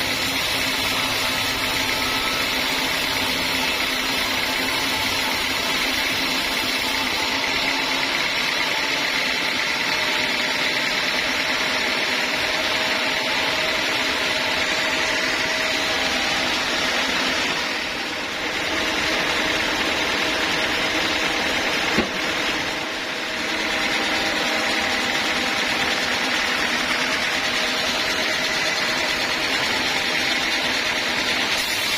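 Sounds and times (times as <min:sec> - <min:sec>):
bandsaw mill running: 0:00.0 - 0:31.9
sharp knock: 0:21.9 - 0:22.2.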